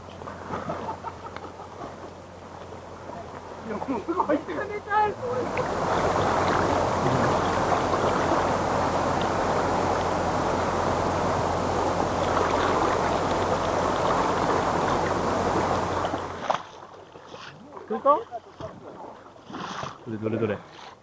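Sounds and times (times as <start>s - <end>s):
river water rushing: 1.9s - 17.3s.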